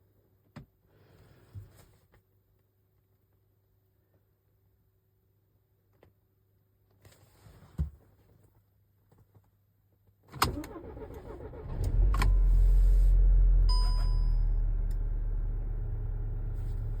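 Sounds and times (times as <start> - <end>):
car engine starting and idling: 10.4 - 17.0
short electronic beep: 13.7 - 14.6.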